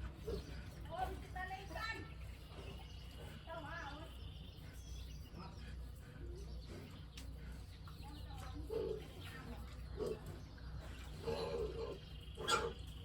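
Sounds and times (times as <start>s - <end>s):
steady low hum: 0.0s - 13.0s
farm animals calling: 8.6s - 13.0s.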